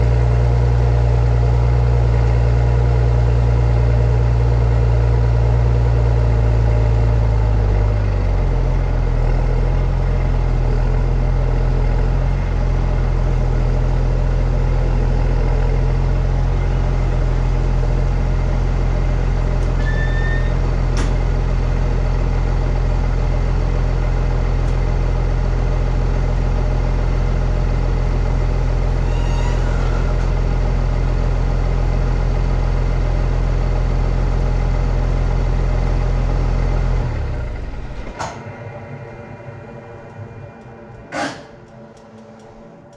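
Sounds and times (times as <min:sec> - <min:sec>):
tractor diesel engine running: 0:00.0 - 0:42.9
click: 0:40.1 - 0:42.9.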